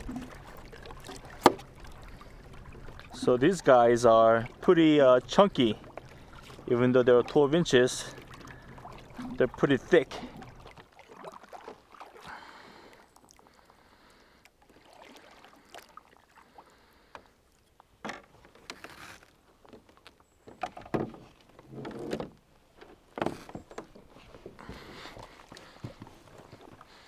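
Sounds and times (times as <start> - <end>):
knocks against kayak hull: 0.0 - 3.2
water splashing: 0.0 - 16.9, 23.3 - 27.0.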